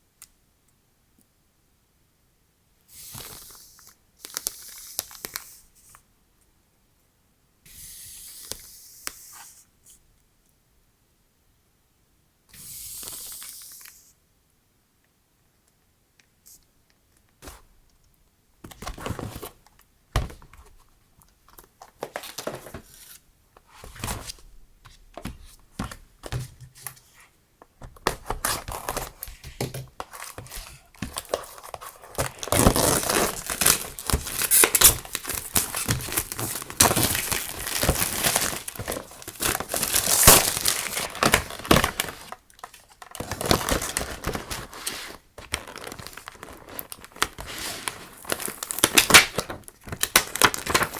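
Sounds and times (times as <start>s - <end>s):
packaging crinkling and tearing: 30.0s - 50.9s.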